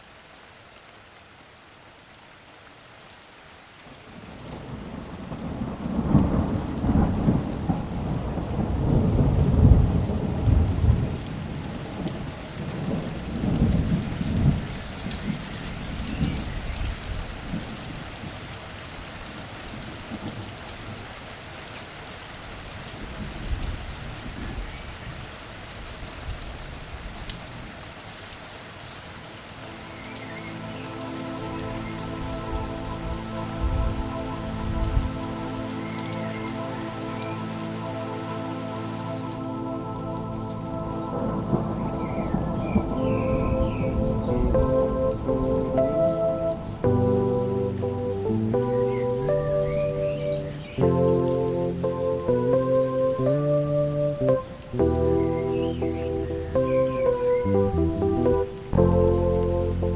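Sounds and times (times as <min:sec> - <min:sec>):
steady rain hiss: 0:00.0 - 0:59.9
thunder rolling: 0:04.4 - 0:15.5, 0:40.1 - 0:51.1.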